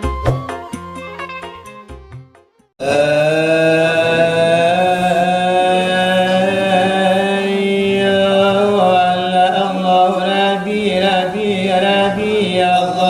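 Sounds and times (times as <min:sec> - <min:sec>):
person chanting long note: 0:02.8 - 0:10.4.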